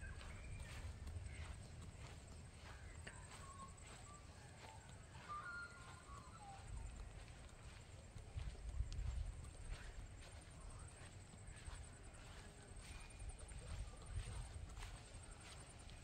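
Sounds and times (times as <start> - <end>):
faint birds chirping: 0.0 - 16.0
footstep clicks: 0.0 - 16.0
wind rumble on microphone: 6.1 - 16.0.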